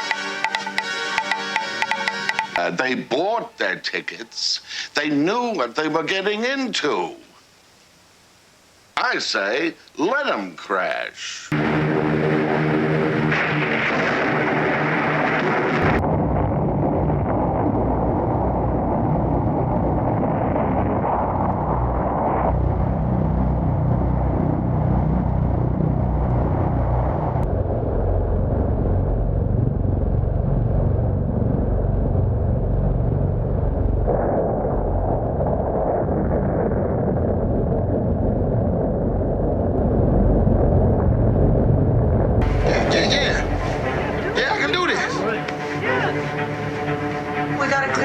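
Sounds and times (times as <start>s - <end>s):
airliner engines droning: 11.6s - 16.0s, 42.4s - 48.0s.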